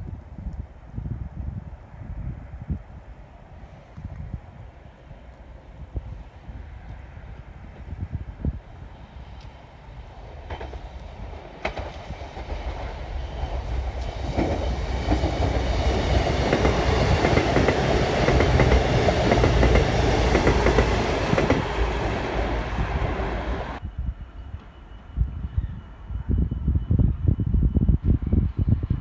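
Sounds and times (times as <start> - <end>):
train passing at speed: 1.8 - 29.0
wheels clicking over rail joints: 10.4 - 22.2.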